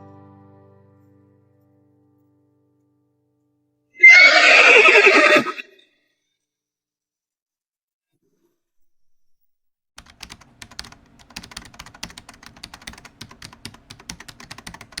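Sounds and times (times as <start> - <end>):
rapid irregular clicking and tapping: 10.0 - 15.0.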